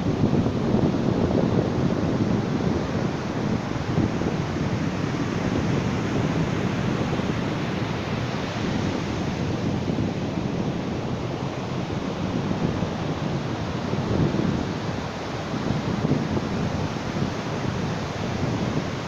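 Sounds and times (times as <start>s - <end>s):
ocean surf rumbling: 0.0s - 19.0s.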